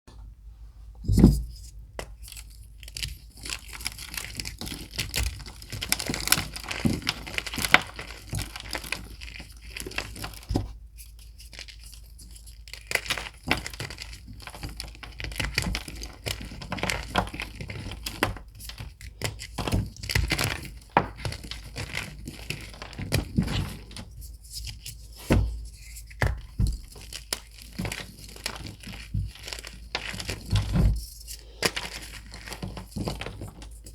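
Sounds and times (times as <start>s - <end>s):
chalk crunching and crackling: 19.4s - 33.9s.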